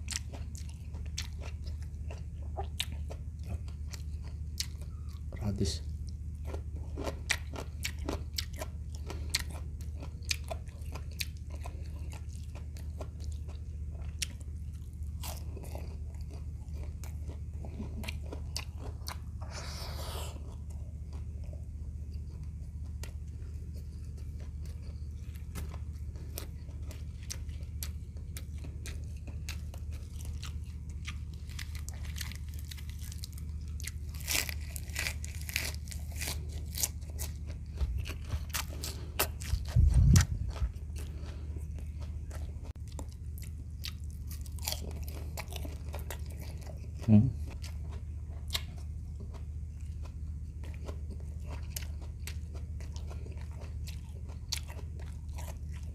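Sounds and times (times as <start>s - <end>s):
crunchy chewing: 0.0s - 55.9s
low steady hum: 0.0s - 55.9s
crisp crunches of cucumber bite: 24.4s - 47.7s.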